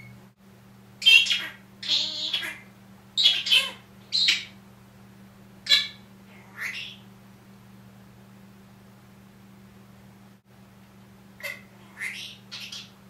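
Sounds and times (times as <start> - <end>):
parrot squawking: 1.0 - 4.6, 5.6 - 7.0, 11.4 - 13.0.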